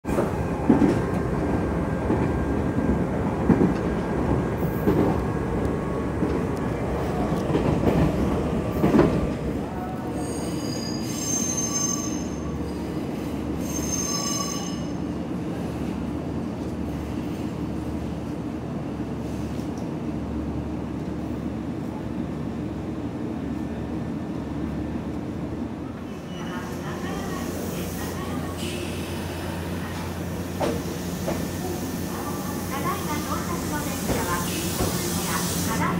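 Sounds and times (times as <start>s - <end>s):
electric train rumbling on track: 0.0s - 35.9s
low train hum: 0.0s - 35.9s
high metallic squeals: 10.2s - 12.4s, 13.6s - 15.0s.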